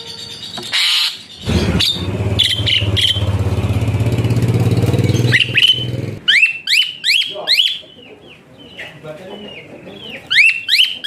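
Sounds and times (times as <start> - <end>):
engine pulsing drone: 1.4 - 6.2
bird sharp rising whistles: 1.8 - 3.2, 5.2 - 7.8.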